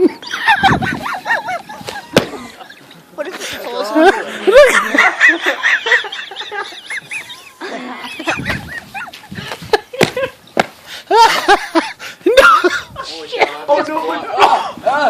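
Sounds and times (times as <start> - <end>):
people laughing: 0.0 - 10.4, 11.0 - 15.0.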